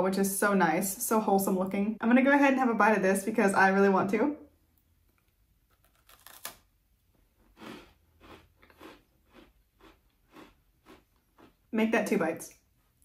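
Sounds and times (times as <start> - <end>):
chewing crunches: 5.7 - 6.7, 7.3 - 11.7
crunchy cookie bite snapping: 5.7 - 6.7.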